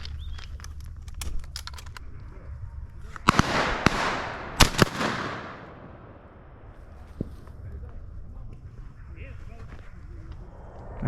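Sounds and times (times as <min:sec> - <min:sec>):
shotgun reports: 0:03.2 - 0:06.6
rushing noise: 0:10.4 - 0:11.0.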